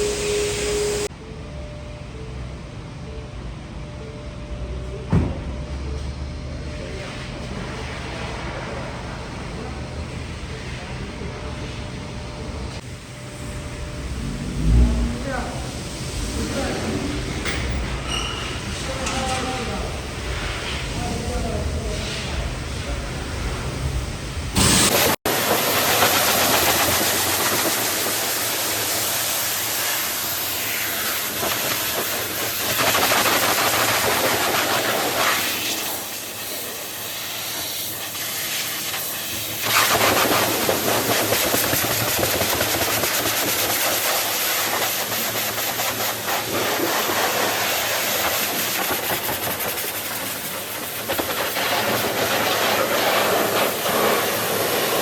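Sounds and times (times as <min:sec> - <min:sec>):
pressure washer spraying: 0:24.6 - 0:55.0.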